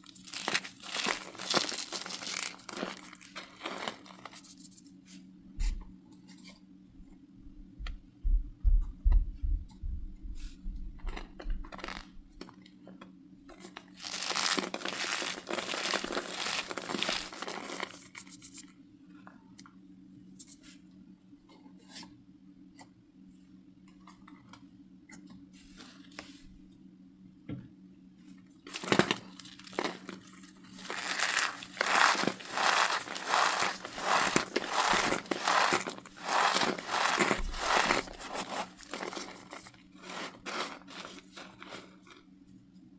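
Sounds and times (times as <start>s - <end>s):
cornstarch crunching: 0.0s - 4.9s, 13.8s - 18.7s, 28.7s - 42.3s
faint crackles: 14.0s - 18.0s, 28.8s - 41.8s.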